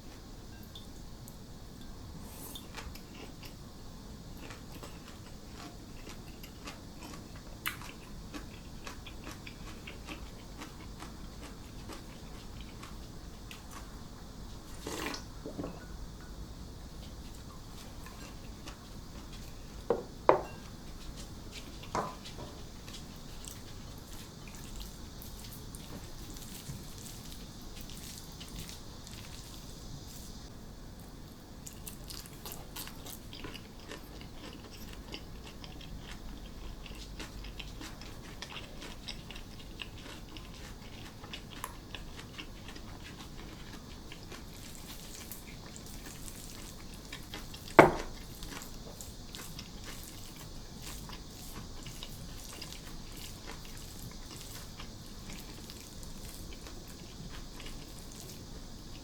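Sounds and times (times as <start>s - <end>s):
chewing and biting: 4.4s - 13.9s, 31.6s - 59.0s.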